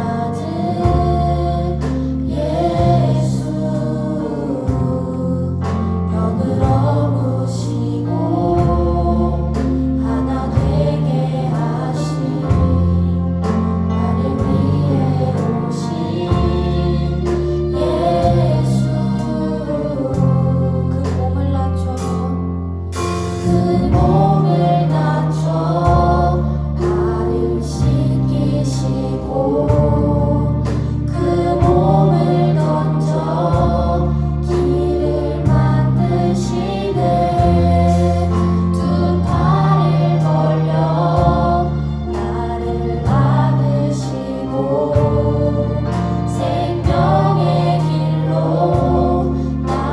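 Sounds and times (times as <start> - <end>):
band accompaniment: 0.0 - 4.1, 4.7 - 49.9
group of singers: 0.0 - 49.9.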